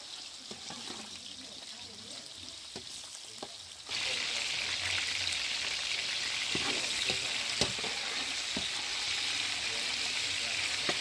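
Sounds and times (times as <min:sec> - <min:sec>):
metal spatula scraping a pan: 0:00.0 - 0:01.2, 0:06.1 - 0:11.0
potato sticks sizzling in oil: 0:00.0 - 0:11.0.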